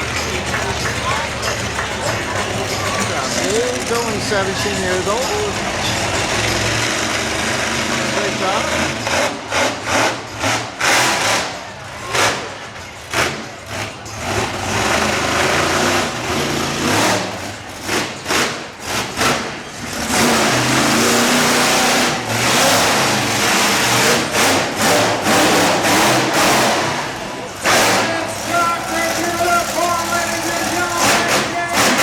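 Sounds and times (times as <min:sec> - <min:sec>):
truck engine revving: 0:00.0 - 0:32.0.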